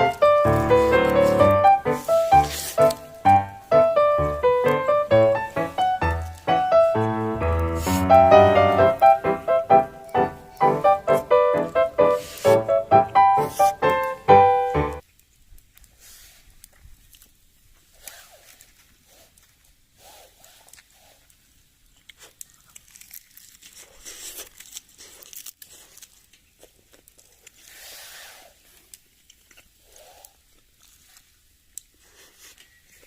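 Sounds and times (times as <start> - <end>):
packaging crinkling and rustling: 21.9 - 27.8.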